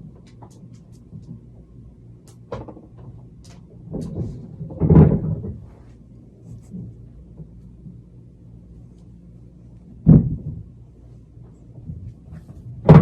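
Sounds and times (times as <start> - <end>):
steady low hum: 0.0 - 13.0
loud dull thud: 10.0 - 10.7.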